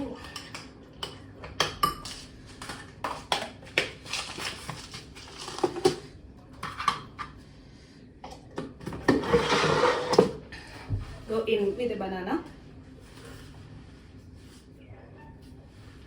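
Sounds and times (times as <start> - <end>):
utensils clinking against a bowl: 0.0 - 7.4
scraping rustle in a bowl: 9.1 - 11.8, 12.8 - 16.0.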